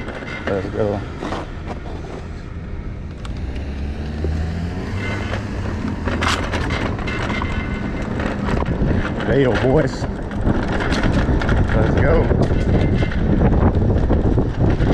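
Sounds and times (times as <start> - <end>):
electric bike road noise: 0.0 - 14.9
wind rumble on microphone: 0.0 - 14.9
rattle of clicks: 5.0 - 14.9.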